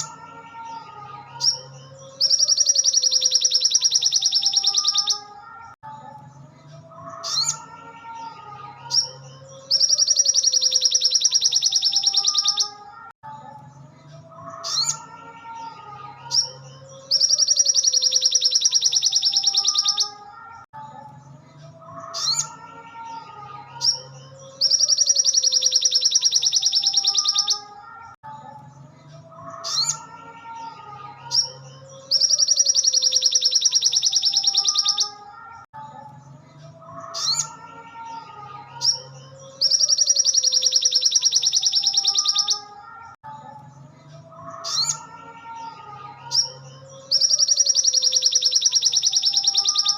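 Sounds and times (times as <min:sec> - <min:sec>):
bird high-pitched fast trill: 0:00.0 - 0:05.7, 0:08.9 - 0:12.9, 0:16.3 - 0:20.3, 0:23.8 - 0:28.2, 0:31.2 - 0:35.7, 0:38.7 - 0:43.2, 0:46.3 - 0:49.9
soft bird chirps and whistles: 0:01.4 - 0:05.3, 0:08.9 - 0:12.8, 0:16.3 - 0:20.2, 0:23.8 - 0:27.7, 0:31.3 - 0:35.2, 0:38.8 - 0:42.7, 0:46.3 - 0:49.9.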